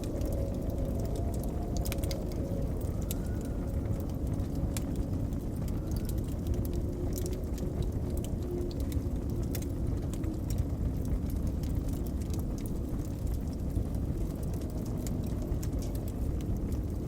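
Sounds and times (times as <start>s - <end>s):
blizzard wind rumbling and whistling: 0.0s - 17.0s
wood fire crackling and popping: 0.0s - 17.0s.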